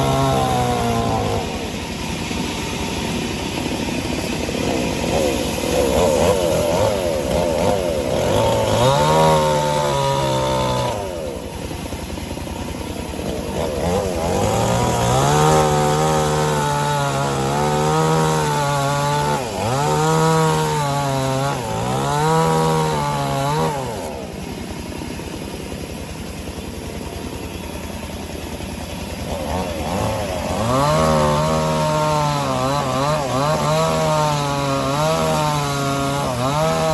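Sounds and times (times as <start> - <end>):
petrol saw cutting wood: 0.0 - 36.9.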